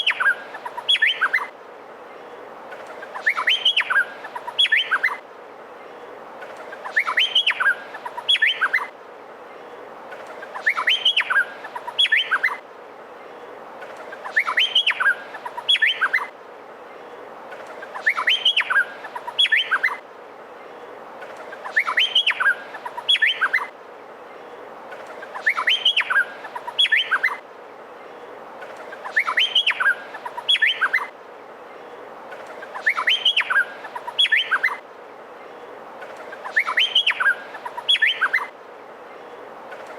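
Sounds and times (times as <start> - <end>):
bird whistled song: 0.0 - 1.5, 3.0 - 5.2, 6.8 - 8.9, 10.5 - 12.6, 14.2 - 16.3, 17.8 - 20.0, 21.6 - 23.7, 25.2 - 27.4, 29.0 - 31.1, 32.5 - 34.8, 36.4 - 38.5
steady hiss: 0.0 - 39.9.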